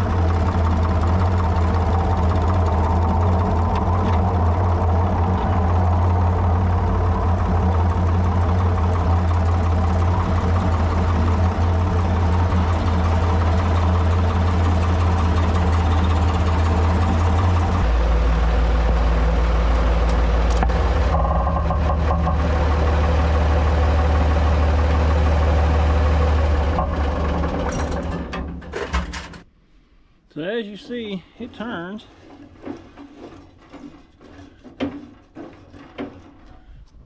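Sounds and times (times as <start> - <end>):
tractor engine running: 0.0 - 29.5.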